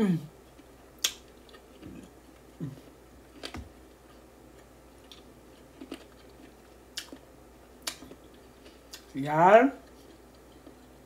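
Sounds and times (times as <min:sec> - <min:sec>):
person chewing meat off bone: 0:00.5 - 0:09.1
lip-smack clicks: 0:01.0 - 0:01.2, 0:07.8 - 0:08.1.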